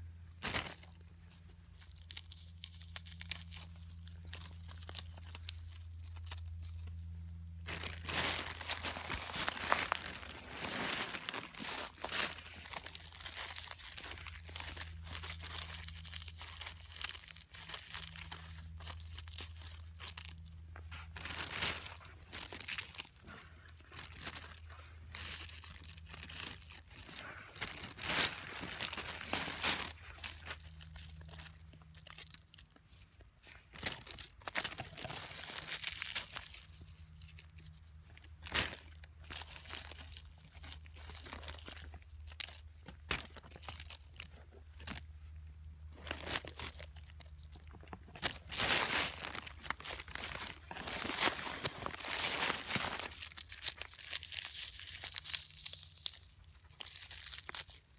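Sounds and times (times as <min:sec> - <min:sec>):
low steady hum: 0:00.0 - 0:57.9
plastic crinkling and tearing: 0:00.4 - 0:45.1, 0:45.9 - 0:57.9.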